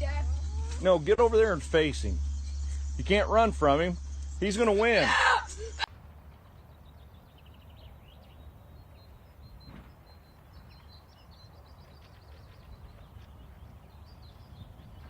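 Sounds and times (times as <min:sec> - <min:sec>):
low outdoor rumble: 0:00.0 - 0:15.0
small birds chirping and trilling: 0:00.0 - 0:15.0.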